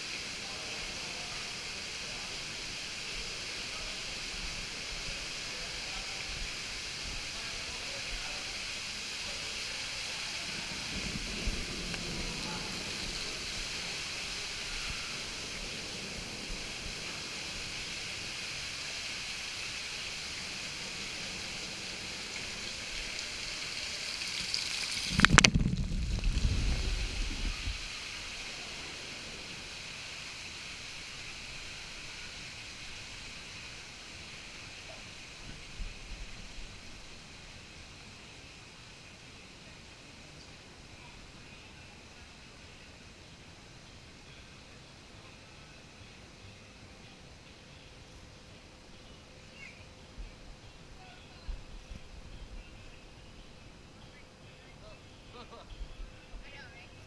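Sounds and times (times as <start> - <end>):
water running: 0.0 - 34.8
loud water splash: 16.5 - 29.0.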